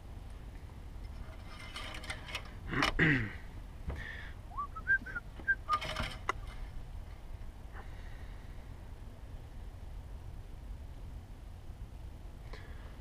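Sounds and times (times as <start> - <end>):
dipstick clicks and rag rustling: 0.6 - 3.0, 5.7 - 7.2.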